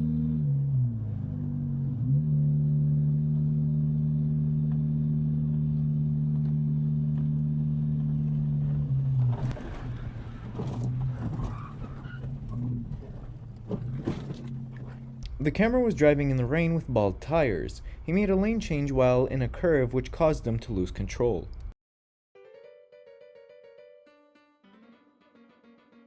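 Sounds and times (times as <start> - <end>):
vehicle engine droning: 0.0 - 16.6.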